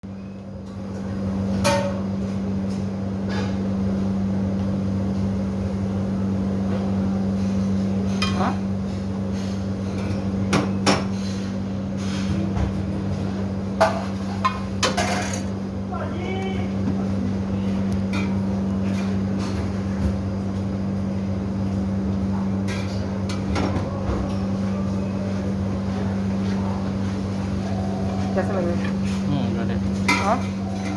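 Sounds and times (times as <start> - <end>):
steady low hum: 0.1 - 30.9
utensil clinking against dish: 29.9 - 30.9.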